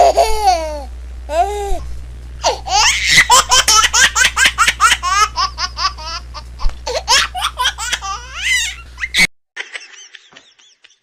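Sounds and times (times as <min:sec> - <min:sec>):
steady low hum: 0:00.0 - 0:09.3
baby squealing: 0:02.4 - 0:03.4, 0:06.9 - 0:09.3
baby giggling: 0:02.4 - 0:09.3.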